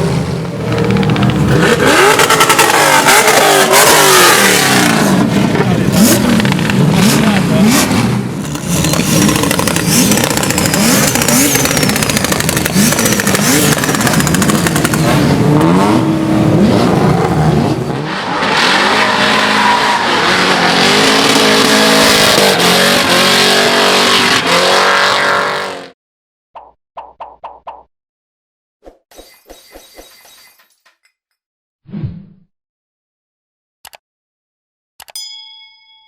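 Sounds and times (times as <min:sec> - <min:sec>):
car accelerating: 0:00.0 - 0:25.9
car engine revving: 0:00.0 - 0:25.9
exhaust pops and crackles: 0:00.7 - 0:02.8, 0:05.4 - 0:07.6, 0:08.4 - 0:15.2.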